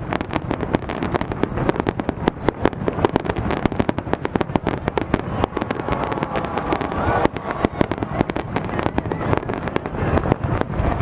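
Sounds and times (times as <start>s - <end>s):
fireworks cracking and popping: 0.0s - 11.0s.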